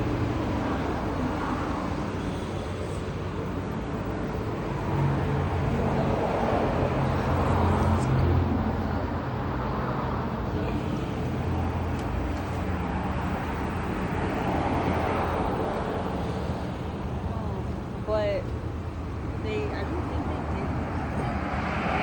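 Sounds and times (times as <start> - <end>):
street traffic noise: 0.0 - 22.0.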